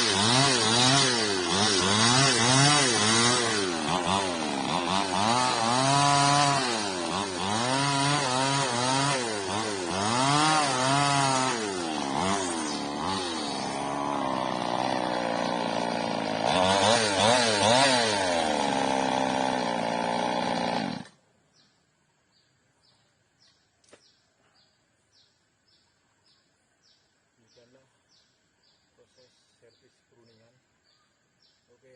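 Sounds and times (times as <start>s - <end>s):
chainsaw revving and cutting: 0.0s - 21.2s
faint regular chirping: 21.4s - 31.9s.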